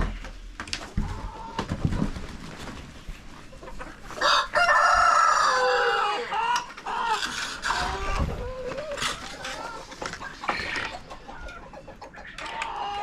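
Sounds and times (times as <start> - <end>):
faint chicken clucking: 3.4 - 13.0
rooster crowing: 4.2 - 6.4.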